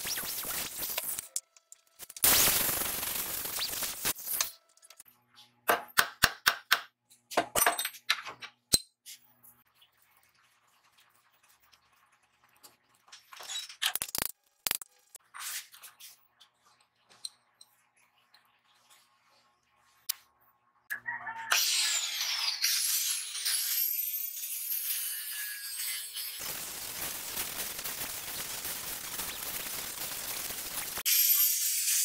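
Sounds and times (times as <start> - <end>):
angle grinder grinding steel: 21.6 - 26.5.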